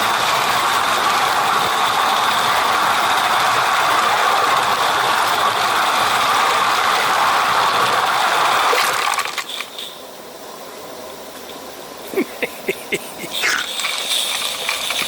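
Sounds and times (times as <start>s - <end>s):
model train hissing: 0.0s - 8.8s, 12.1s - 15.0s
mechanical rattle: 13.4s - 15.0s.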